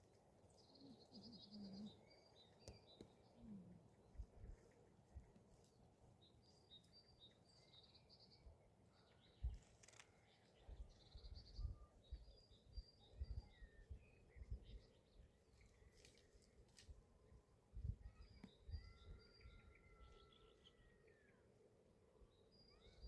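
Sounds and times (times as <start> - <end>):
small birds chirping: 0.4 - 16.5, 22.4 - 23.0.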